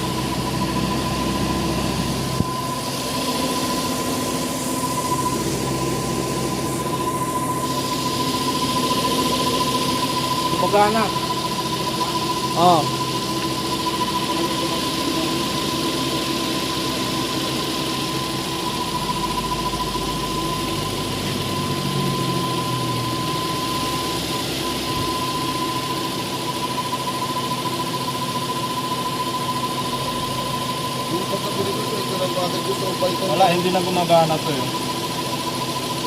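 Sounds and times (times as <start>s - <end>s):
car engine idling: 0.0s - 27.0s
steady high whine: 0.0s - 36.0s.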